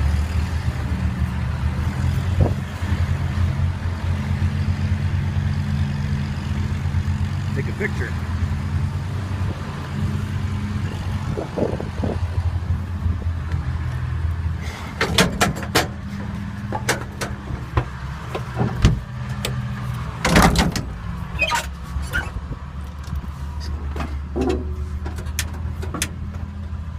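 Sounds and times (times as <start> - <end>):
tractor engine running: 0.0 - 26.9
sharp clicks and knocks: 15.0 - 22.2, 22.8 - 26.5.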